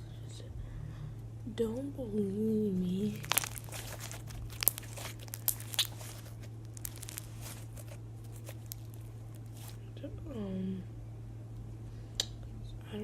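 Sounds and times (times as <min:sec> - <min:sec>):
steady low hum: 0:00.0 - 0:13.0
slime crackling and popping: 0:03.0 - 0:09.8.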